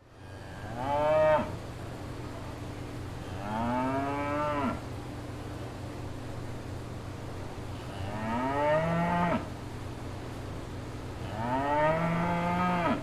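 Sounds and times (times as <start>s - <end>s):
steady low hum: 0.0s - 13.0s
cow mooing: 11.3s - 13.0s.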